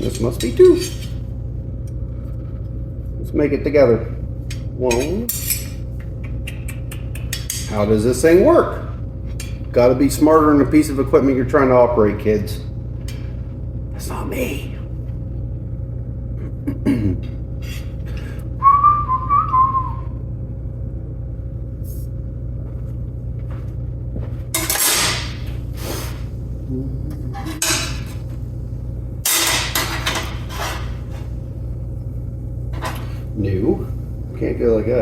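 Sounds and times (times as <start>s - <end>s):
steady low hum: 0.0s - 35.0s
person whistling: 18.6s - 20.2s.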